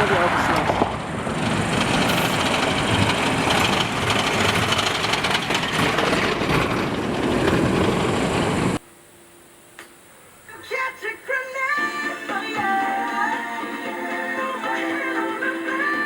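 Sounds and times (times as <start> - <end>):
motorcycle engine: 0.0 - 8.8
rapid clatter from rough road: 0.0 - 8.8
wind noise: 0.0 - 8.8.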